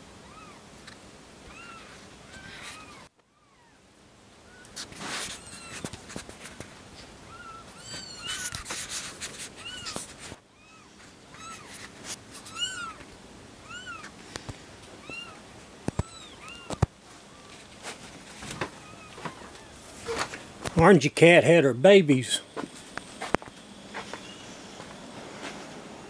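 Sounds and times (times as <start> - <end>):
kittens meowing: 0.2 - 0.7, 1.4 - 3.8, 4.4 - 5.9, 7.2 - 8.8, 9.5 - 11.8, 12.4 - 14.2, 14.9 - 17.6, 18.6 - 20.3.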